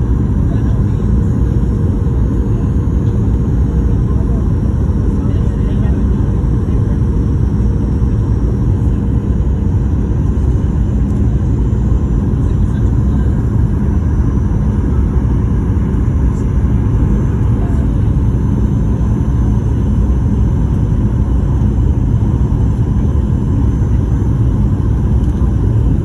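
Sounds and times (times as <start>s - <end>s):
jet engine low rumble: 0.0s - 26.0s.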